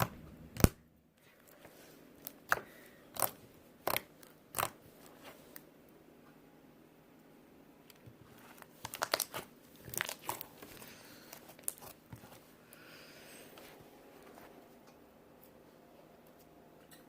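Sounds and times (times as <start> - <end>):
slime rustling: 1.2 - 5.7, 8.2 - 12.7
slime crackling and popping: 2.2 - 4.8, 8.6 - 10.8, 11.5 - 12.0.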